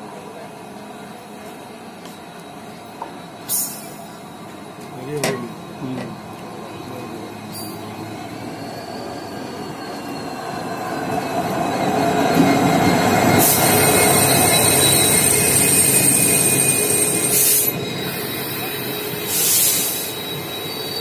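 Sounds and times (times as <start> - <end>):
train rumbling on rails: 0.0 - 21.0
high-pitched wheel squeal: 7.5 - 21.0.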